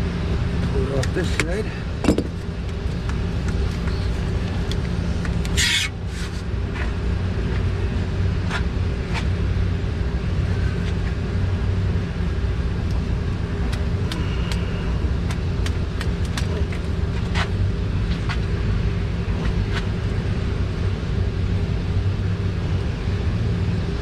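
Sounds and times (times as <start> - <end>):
engine hum: 0.0 - 24.0
clicks and knocks on hose fittings: 1.0 - 3.8.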